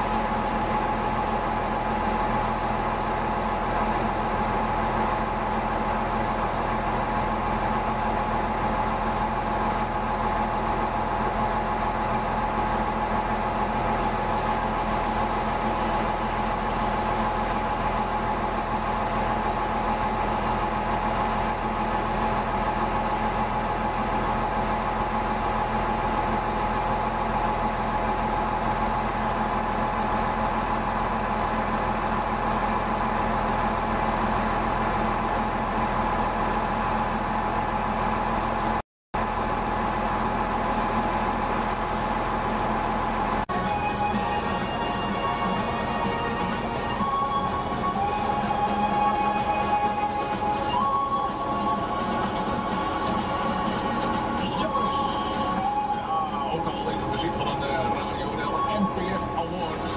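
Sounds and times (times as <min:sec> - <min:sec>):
bulldozer diesel engine running: 0:00.0 - 0:59.9
constant whining tone: 0:43.3 - 0:59.9.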